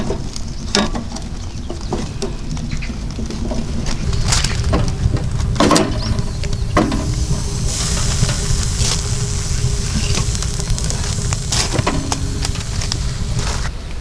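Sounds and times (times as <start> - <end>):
pancake sizzling in oil: 4.4 - 13.7.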